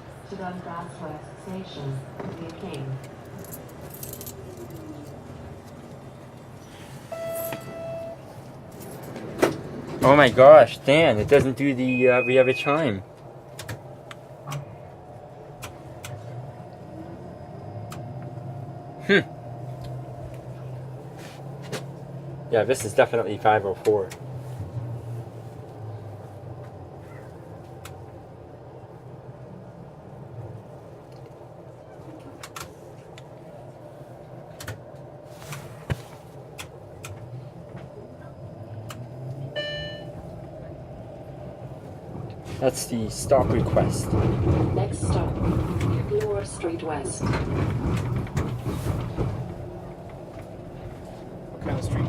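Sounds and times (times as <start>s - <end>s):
streetcar cabin hum: 0.0s - 52.0s.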